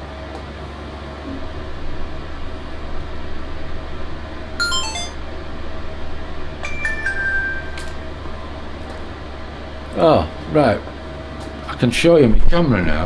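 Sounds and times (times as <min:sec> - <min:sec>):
descending electronic beeps: 0:04.6 - 0:05.2
held electronic tones: 0:04.6 - 0:05.2.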